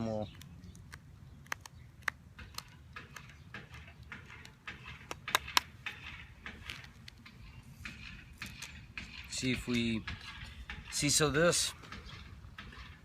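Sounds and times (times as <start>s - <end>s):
sharp clicks: 0.2s - 9.2s.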